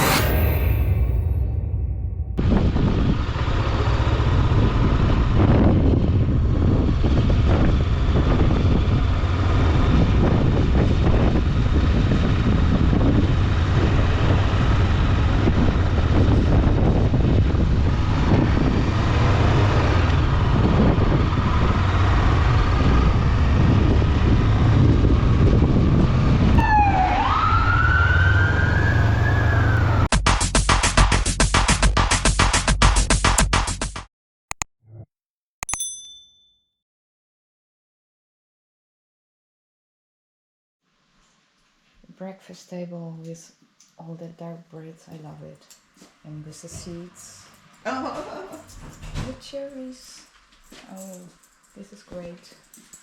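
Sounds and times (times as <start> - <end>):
wind buffeting microphone: 2.4 - 27.7.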